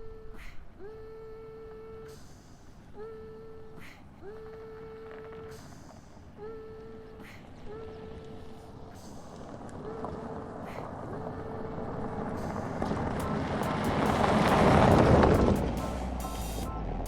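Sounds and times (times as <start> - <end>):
car driving past: 9.5 - 17.0.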